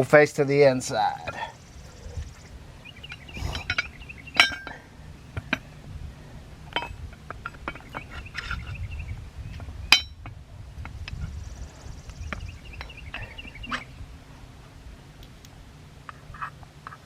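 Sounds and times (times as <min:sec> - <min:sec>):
metal parts clinking: 0:03.1 - 0:04.8.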